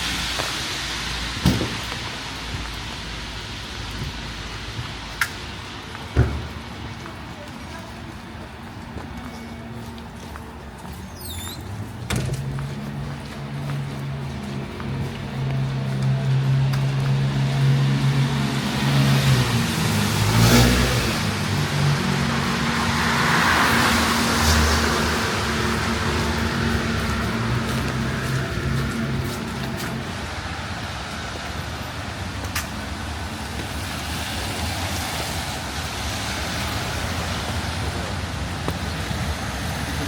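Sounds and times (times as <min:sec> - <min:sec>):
tyre noise hiss: 0:00.0 - 0:06.8
traffic on wet street: 0:00.0 - 0:40.0
car driving past: 0:11.2 - 0:31.0.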